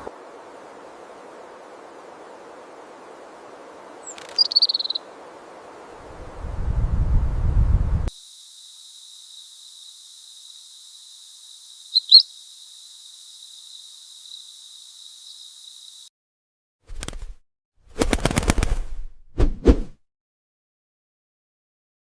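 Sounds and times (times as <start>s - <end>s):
faint hiss: 0.0s - 16.1s
high insect-like trill: 8.1s - 16.1s.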